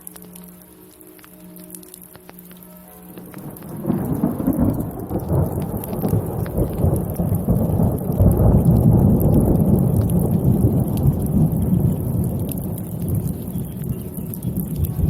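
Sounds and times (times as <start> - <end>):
rain falling: 0.0 - 15.0
thunder rumbling: 3.1 - 15.0.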